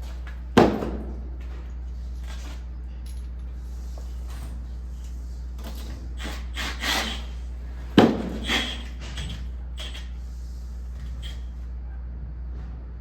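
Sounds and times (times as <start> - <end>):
handling knocks and scrapes: 3.7 - 11.6.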